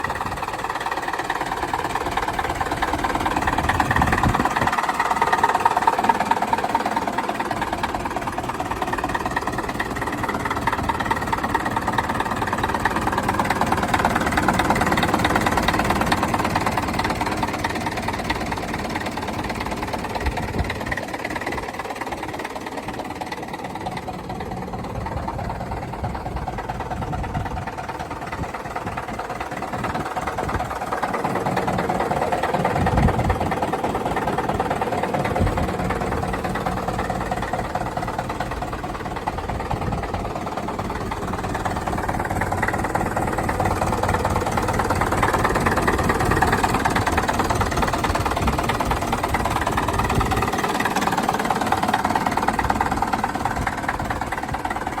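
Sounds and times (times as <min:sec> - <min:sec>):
tractor engine idling: 0:00.0 - 0:55.0.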